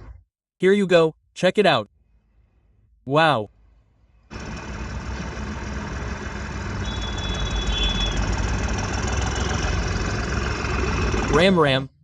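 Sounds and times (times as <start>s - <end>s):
vehicle engine running: 4.3s - 11.6s.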